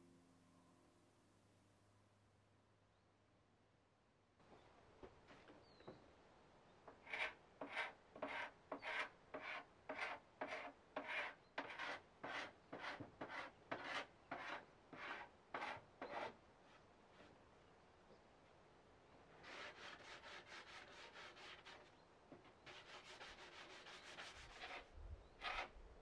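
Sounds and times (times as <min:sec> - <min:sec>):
paint scraper scratching wood: 0:07.0 - 0:16.4, 0:19.4 - 0:21.9, 0:22.6 - 0:25.8.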